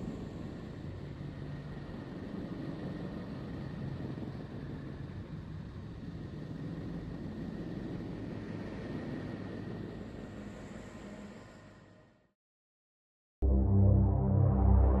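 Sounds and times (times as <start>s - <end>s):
rumbling noise drone: 13.4s - 15.0s.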